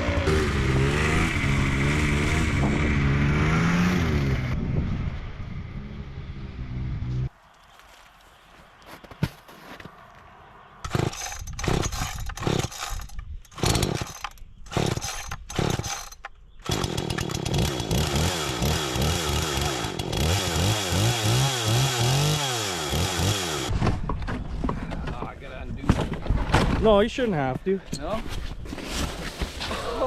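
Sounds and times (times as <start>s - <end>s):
chainsaw engine running: 10.9s - 23.7s.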